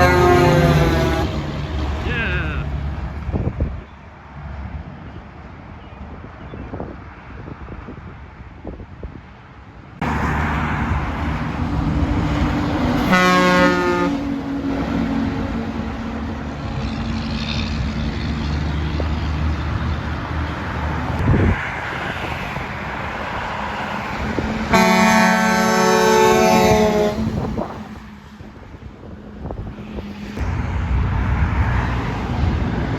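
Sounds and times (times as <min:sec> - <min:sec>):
truck air horn blasts: 0:00.0 - 0:01.5, 0:13.0 - 0:14.4, 0:24.7 - 0:27.6.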